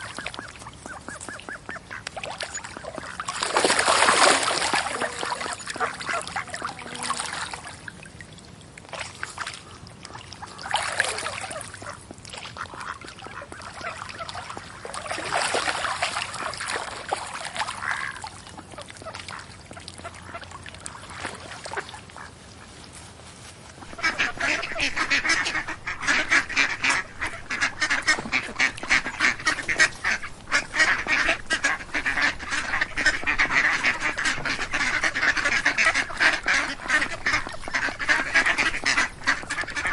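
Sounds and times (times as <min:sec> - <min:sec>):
ducks quacking: 0:00.0 - 0:07.9, 0:09.4 - 0:22.8, 0:23.7 - 0:39.9.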